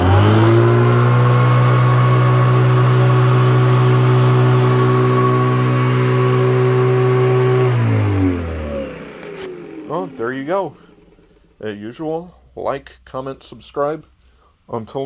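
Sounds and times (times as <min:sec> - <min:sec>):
vacuum cleaner motor whine: 0:00.0 - 0:11.6.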